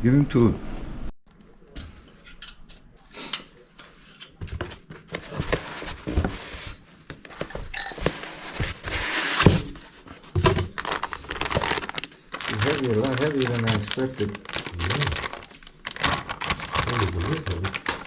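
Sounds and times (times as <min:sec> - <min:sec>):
knocks and clinks of parts: 0:01.7 - 0:02.9, 0:06.6 - 0:08.3
packaging rustling: 0:04.6 - 0:18.0.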